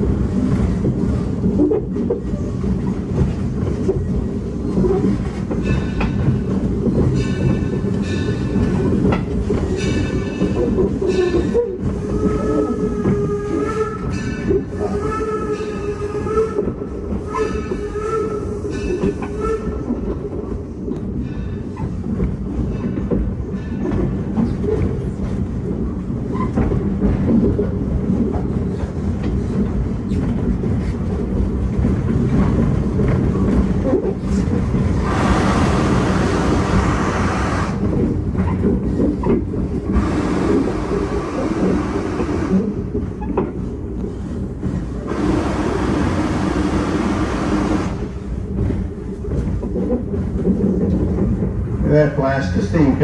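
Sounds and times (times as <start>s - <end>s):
train rumble and wheel clatter: 0.0s - 53.0s
steam hiss: 35.0s - 37.8s, 39.9s - 42.7s.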